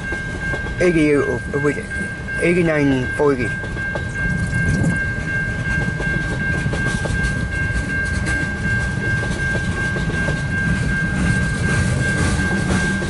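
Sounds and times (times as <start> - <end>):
freight train rumble: 0.0 - 13.0
steady high tone: 0.0 - 13.0
wheels clicking over rail joints: 3.1 - 13.0.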